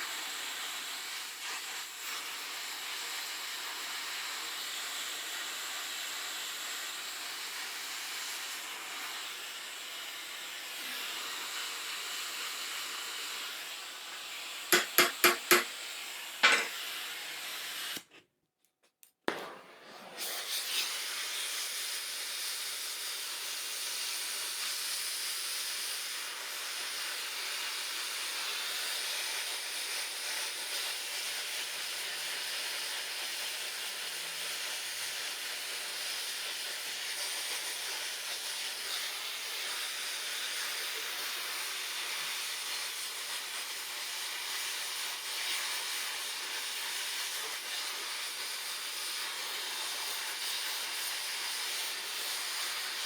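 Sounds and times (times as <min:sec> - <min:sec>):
welding hiss: 0:00.0 - 0:18.1, 0:20.4 - 0:53.0
sharp knock: 0:14.8 - 0:15.7.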